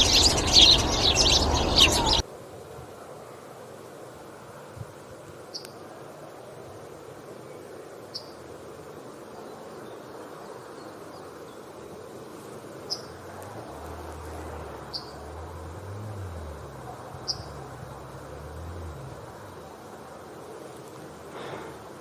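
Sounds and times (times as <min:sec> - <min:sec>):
low rumble: 0:00.0 - 0:02.2
steady background hiss: 0:00.0 - 0:22.0.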